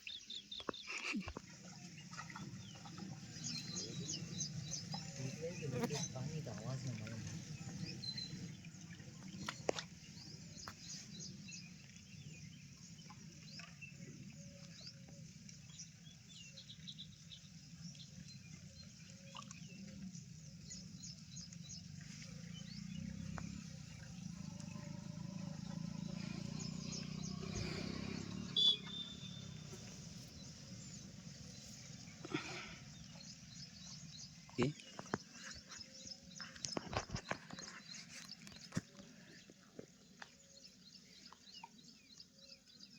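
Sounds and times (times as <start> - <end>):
high-pitched wildlife chirps: 25.8 - 30.3.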